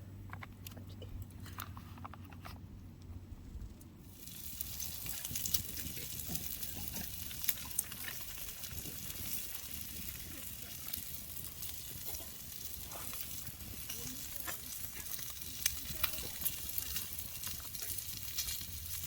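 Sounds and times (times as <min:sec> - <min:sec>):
meat sizzling on a pan: 0:04.1 - 0:19.0.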